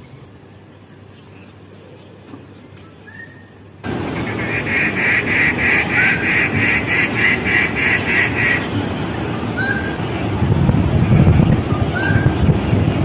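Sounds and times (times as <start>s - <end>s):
low background noise: 0.0s - 13.0s
bird harsh nasal calls: 3.0s - 10.0s.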